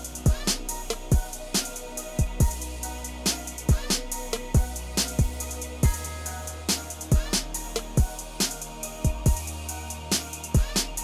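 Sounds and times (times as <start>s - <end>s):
deep bass notes: 0.0s - 11.0s
drum beat: 2.2s - 2.6s, 3.6s - 6.0s, 7.0s - 9.5s.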